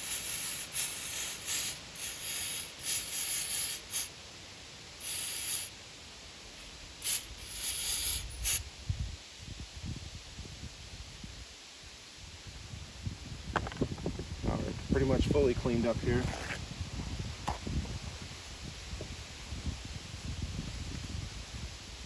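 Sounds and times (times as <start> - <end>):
pressurised spray hissing: 0.0 - 8.7.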